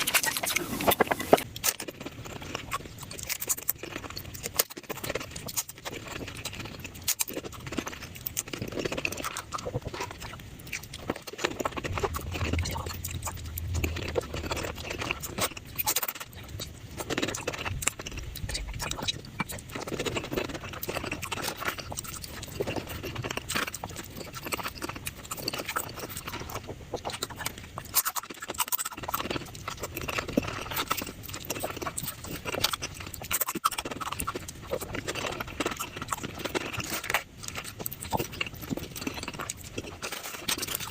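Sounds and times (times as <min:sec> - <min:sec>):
rapid chewing and crunching: 0:00.0 - 0:40.9.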